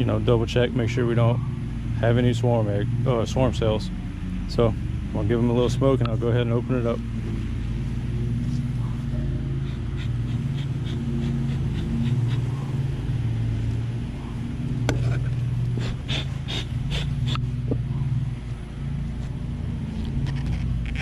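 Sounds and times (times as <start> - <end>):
honeybees humming: 0.0 - 21.0
bee smoker bellows puffing: 5.9 - 18.4.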